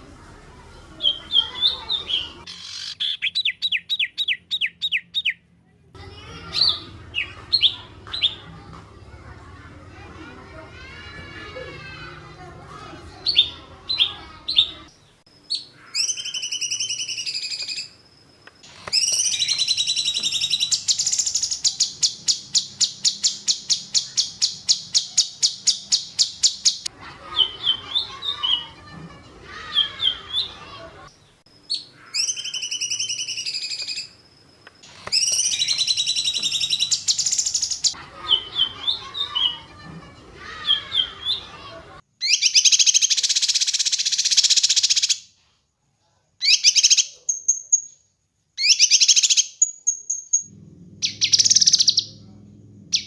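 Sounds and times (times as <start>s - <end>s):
high whistled birdsong: 1.0s - 5.4s, 6.2s - 8.6s, 13.2s - 14.9s, 18.9s - 28.8s, 29.5s - 30.7s, 35.1s - 39.8s, 40.4s - 45.2s
rapid bird trill: 6.0s - 8.7s, 19.0s - 30.8s, 35.2s - 45.1s, 48.6s - 52.2s.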